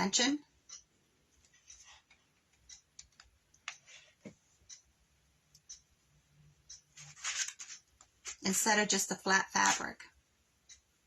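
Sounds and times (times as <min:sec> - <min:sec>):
fabric rustling: 0:07.0 - 0:08.5.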